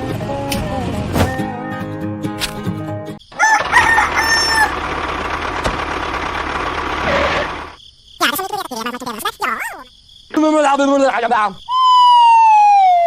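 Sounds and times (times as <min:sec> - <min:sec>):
rooster crowing: 0:03.3 - 0:04.8.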